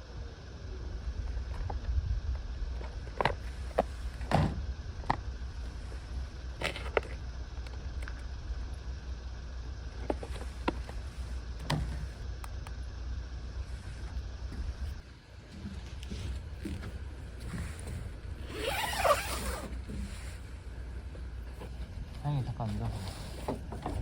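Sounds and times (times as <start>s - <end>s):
wind rumbling on microphone: 0.0s - 6.6s.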